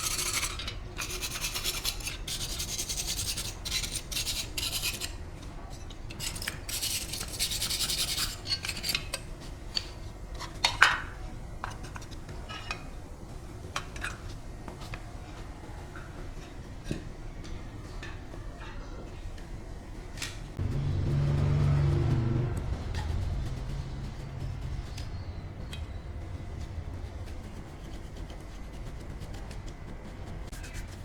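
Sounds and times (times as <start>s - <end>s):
hand sanding metal: 0.0s - 5.1s, 6.2s - 9.0s, 20.7s - 31.0s.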